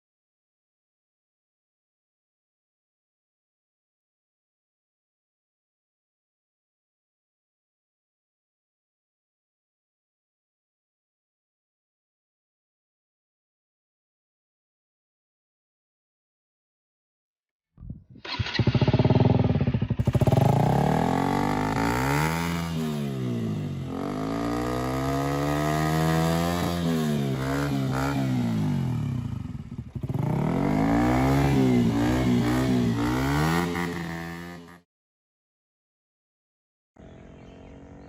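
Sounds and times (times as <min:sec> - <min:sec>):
motorcycle engine revving: 0:18.2 - 0:34.8, 0:37.0 - 0:38.0.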